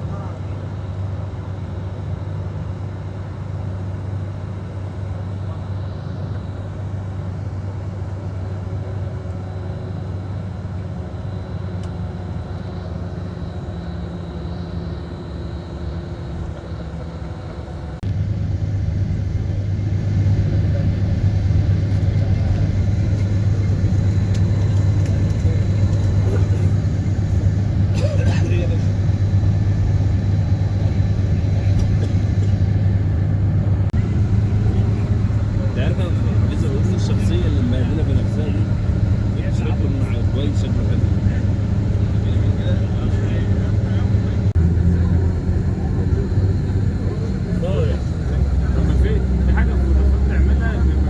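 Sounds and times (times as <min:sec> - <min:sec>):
car driving rumble: 0:13.4 - 0:51.0.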